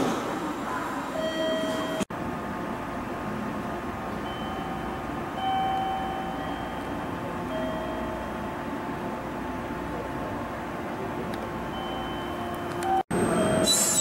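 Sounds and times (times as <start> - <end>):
train equipment humming: 0.1 - 14.0.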